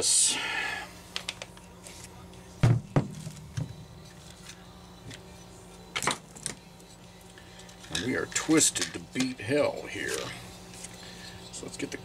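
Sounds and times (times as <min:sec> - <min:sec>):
heavier thumps: 0:02.6 - 0:03.8.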